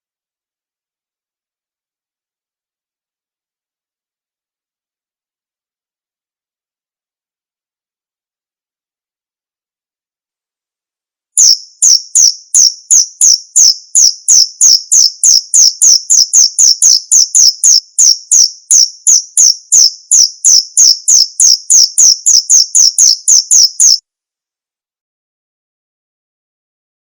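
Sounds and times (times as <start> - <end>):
cricket chirping: 11.4 - 24.0.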